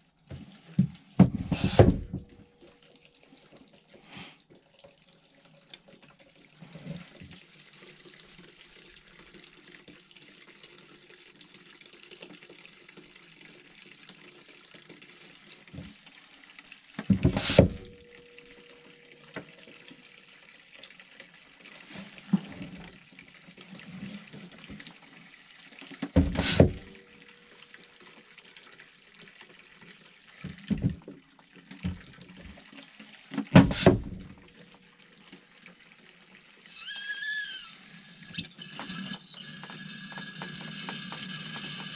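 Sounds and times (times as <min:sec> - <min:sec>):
liquid running: 0:26.0 - 0:28.0, 0:31.8 - 0:34.7, 0:36.6 - 0:41.9.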